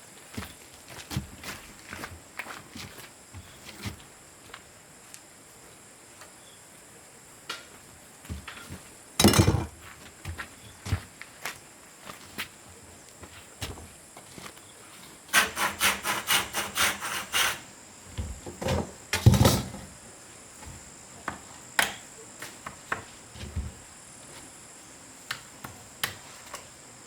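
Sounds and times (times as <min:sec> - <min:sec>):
high insect drone: 0:00.0 - 0:27.0
saw rasping on wood: 0:15.3 - 0:17.7.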